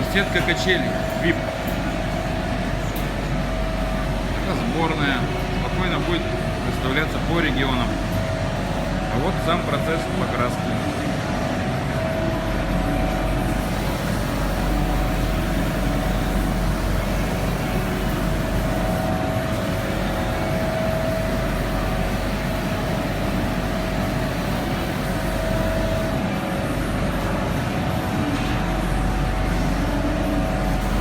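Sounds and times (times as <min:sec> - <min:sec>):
constant whine: 0:00.0 - 0:31.0
air hissing: 0:13.4 - 0:26.2.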